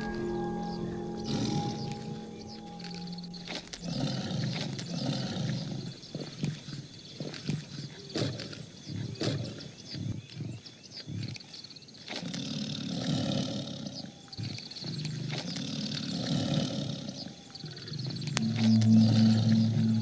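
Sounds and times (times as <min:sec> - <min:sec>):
music: 0:00.0 - 0:04.0, 0:18.4 - 0:20.0.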